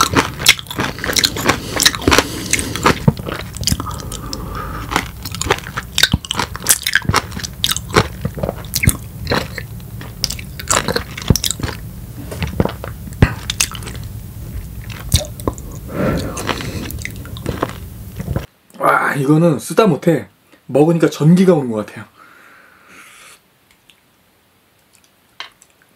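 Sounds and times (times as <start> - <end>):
wet chewing clicks and smacks: 0.0 - 18.5.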